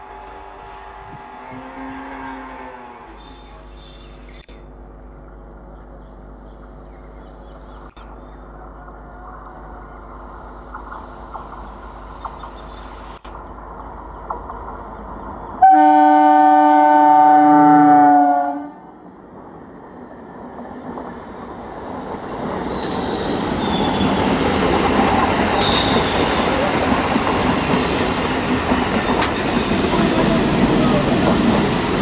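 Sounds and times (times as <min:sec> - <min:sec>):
train horn blast: 0:01.3 - 0:03.4, 0:15.6 - 0:18.9
train wheels rumbling: 0:08.5 - 0:32.0
rail joint clacks: 0:19.4 - 0:32.0.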